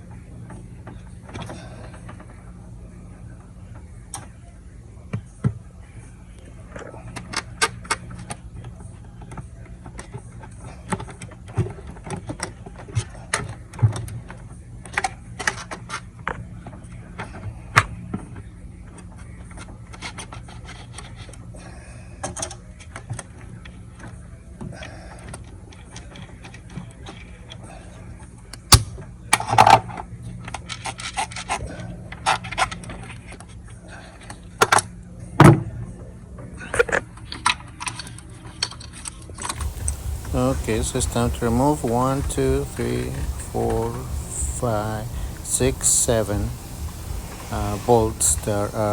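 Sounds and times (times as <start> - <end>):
steady low hum: 39.5 - 48.9.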